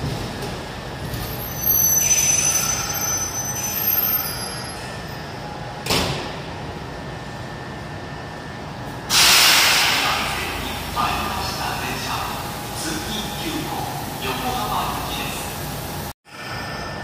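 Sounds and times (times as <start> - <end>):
electric train running rumble: 0.0 - 17.0
brakes and wheels squealing: 1.0 - 5.3
short loud burst of train halting: 9.1 - 11.3.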